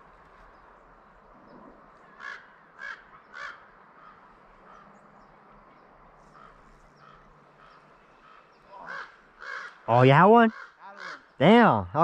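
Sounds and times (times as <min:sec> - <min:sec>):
bird calling: 0:06.2 - 0:12.0.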